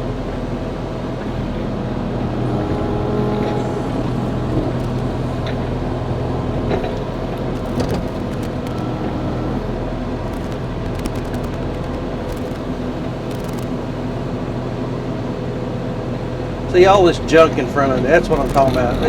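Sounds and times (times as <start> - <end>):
excavator diesel engine running: 0.0 - 19.0
sharp clicks: 7.4 - 8.9, 10.2 - 13.8, 18.3 - 19.0.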